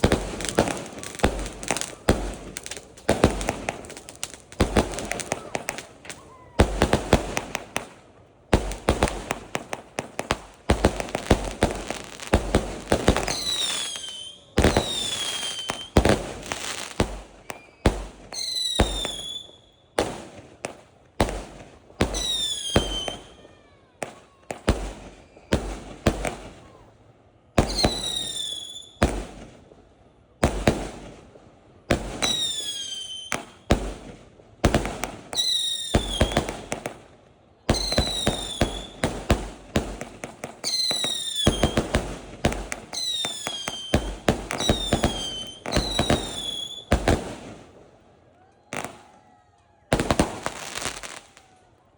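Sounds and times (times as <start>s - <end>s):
fireworks bangs and crackles: 0.0s - 51.9s
falling firework whistle: 11.4s - 20.0s, 22.0s - 26.8s, 27.6s - 29.2s, 32.2s - 33.7s, 35.3s - 36.8s, 37.7s - 39.1s, 40.6s - 41.9s, 42.9s - 47.2s.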